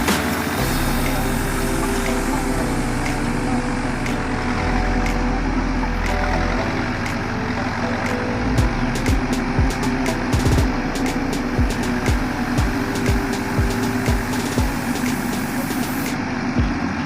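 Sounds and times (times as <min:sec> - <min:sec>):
diesel construction machinery engine: 0:00.0 - 0:17.0.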